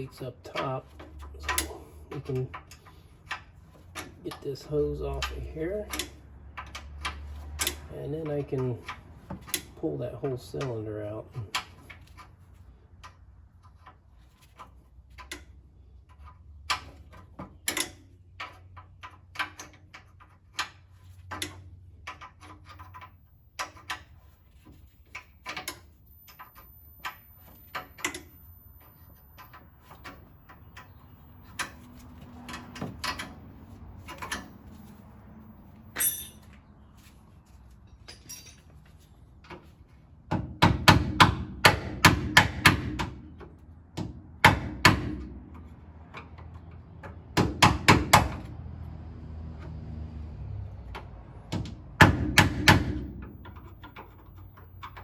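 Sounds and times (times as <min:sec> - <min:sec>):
metallic clicks of wrenches: 0:00.0 - 0:35.0, 0:35.7 - 0:36.6, 0:37.9 - 0:39.7.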